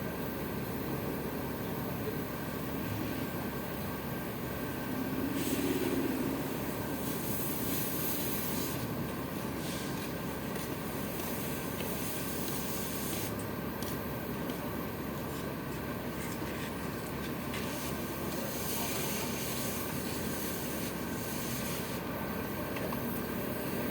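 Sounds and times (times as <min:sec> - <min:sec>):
truck engine running: 0:00.2 - 0:23.9
high hiss: 0:04.8 - 0:10.2.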